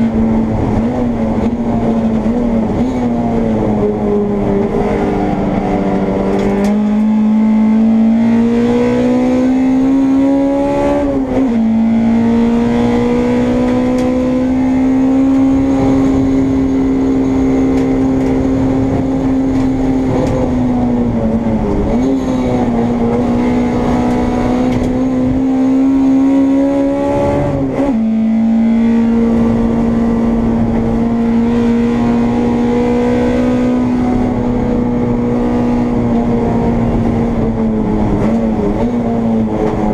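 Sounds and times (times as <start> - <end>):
race car engine from cockpit: 0.0 - 39.9.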